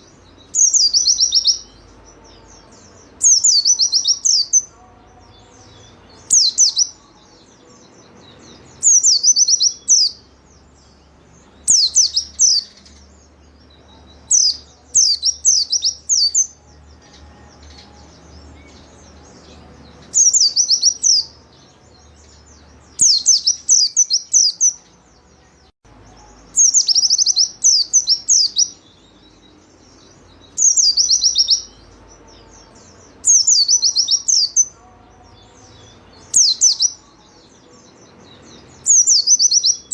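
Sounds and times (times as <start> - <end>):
bird twittering: 0.0 - 1.7, 11.6 - 13.1, 30.4 - 31.8, 36.3 - 37.0.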